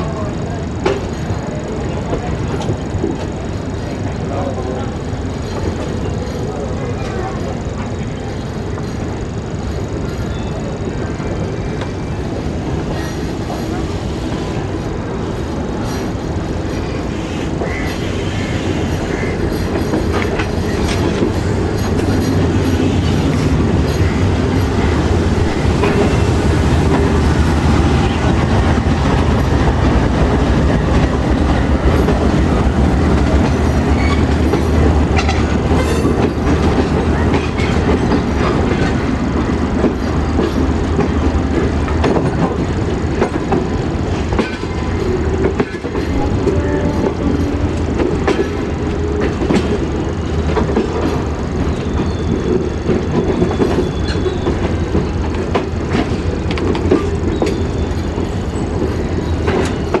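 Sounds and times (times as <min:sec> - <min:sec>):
passenger train rumbling on rails: 0:00.0 - 1:00.0
wheels clattering over rail joints: 0:17.6 - 1:00.0.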